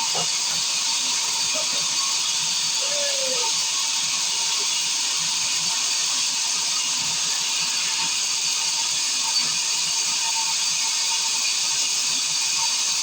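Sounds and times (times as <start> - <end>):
sawmill machinery hissing: 0.0 - 8.3.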